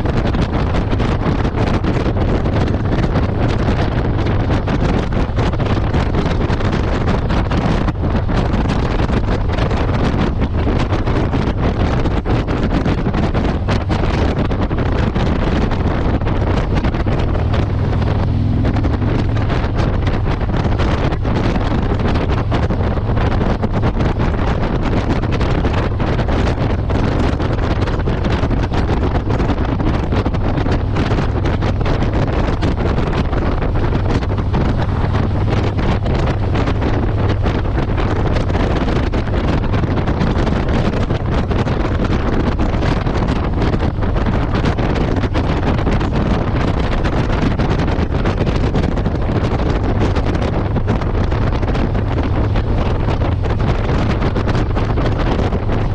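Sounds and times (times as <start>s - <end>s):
motorcycle engine running: 0.0s - 55.9s
wind rushing over microphone: 0.0s - 55.9s.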